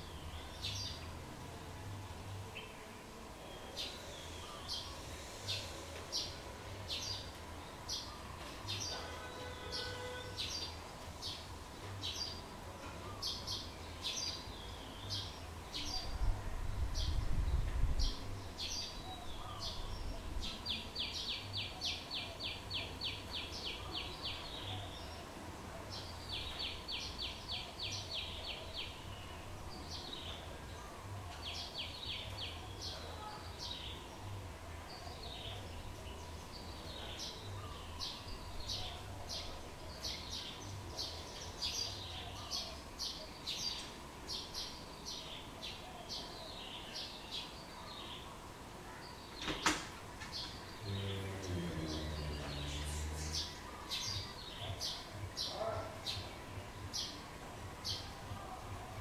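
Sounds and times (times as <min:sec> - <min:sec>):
birds chirping: 0:17.0 - 0:59.0.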